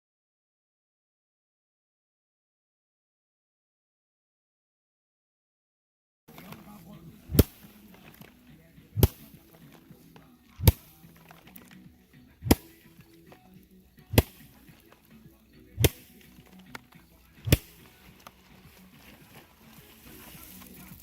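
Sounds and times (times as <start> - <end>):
sharp blows: 7.2 - 8.3, 14.0 - 14.9, 15.8 - 16.6, 17.4 - 20.4.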